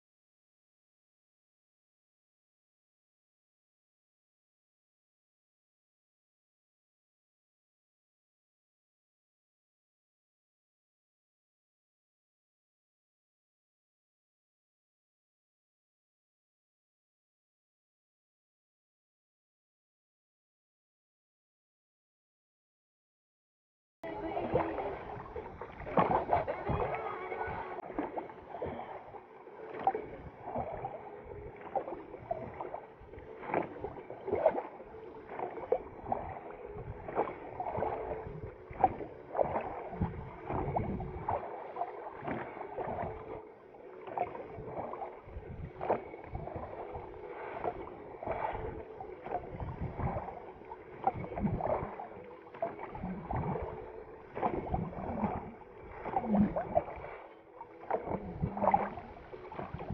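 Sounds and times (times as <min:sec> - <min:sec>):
oar strokes splashing water: 0:24.0 - 0:59.9.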